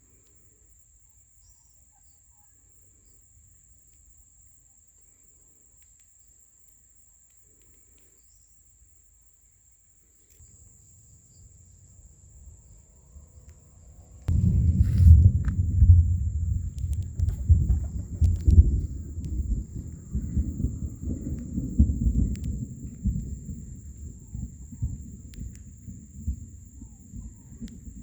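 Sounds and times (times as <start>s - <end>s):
insects trilling: 0.0s - 28.0s
loud low rumble: 13.8s - 23.8s.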